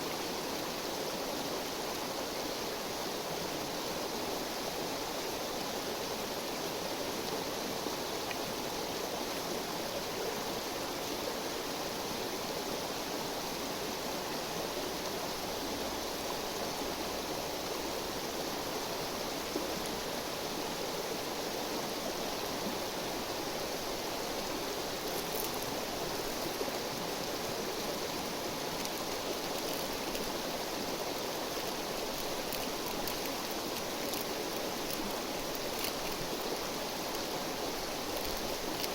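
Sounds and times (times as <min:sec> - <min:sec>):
river water flowing: 0:00.0 - 0:38.9
faint high ticks: 0:31.6 - 0:37.3.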